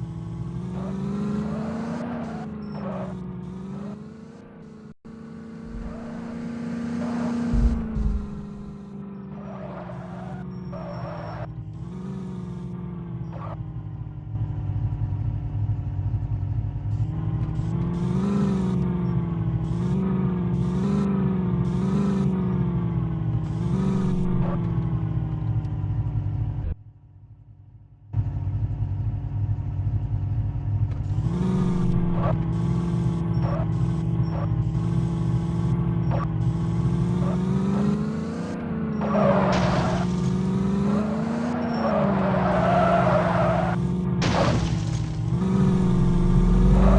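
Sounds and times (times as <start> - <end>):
tractor engine revving: 0.0 - 13.6, 30.5 - 46.9.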